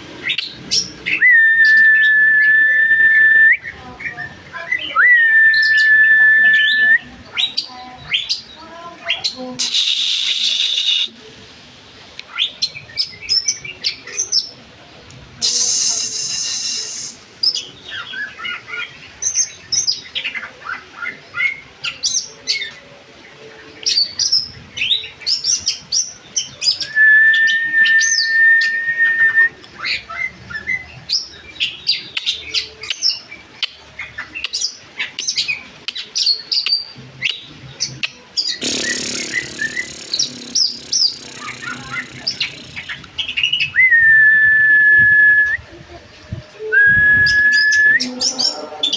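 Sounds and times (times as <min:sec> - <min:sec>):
birds chirping and trilling: 0:00.0 - 0:11.1, 0:12.2 - 0:15.1, 0:16.4 - 0:29.0, 0:29.6 - 0:44.0, 0:45.6 - 0:48.9
harsh noisy bird calls: 0:00.0 - 0:11.2, 0:23.7 - 0:44.0
long steady bird whistle: 0:01.1 - 0:03.7, 0:05.0 - 0:07.1, 0:15.4 - 0:17.2, 0:26.8 - 0:29.6, 0:43.6 - 0:45.6, 0:46.6 - 0:48.2.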